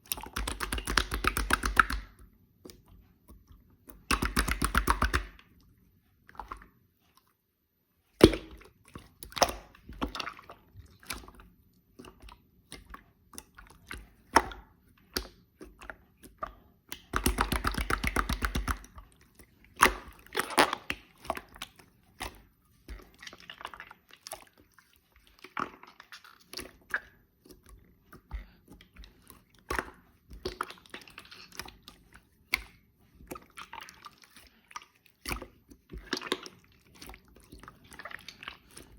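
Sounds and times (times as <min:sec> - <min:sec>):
slime clicking and popping: 0:00.0 - 0:02.2, 0:03.9 - 0:05.4, 0:16.9 - 0:19.0.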